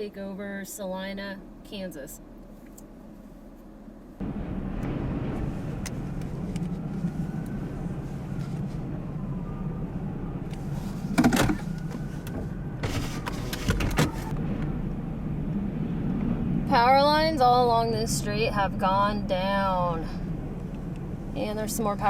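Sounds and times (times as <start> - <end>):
strong wind rumbling: 4.2 - 22.0.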